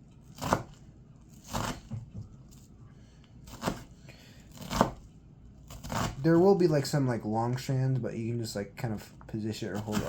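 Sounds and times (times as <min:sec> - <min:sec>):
knife chopping onion on board: 0:00.4 - 0:00.8, 0:01.4 - 0:02.2, 0:03.5 - 0:03.9, 0:04.5 - 0:05.0, 0:05.7 - 0:06.2, 0:09.7 - 0:10.0.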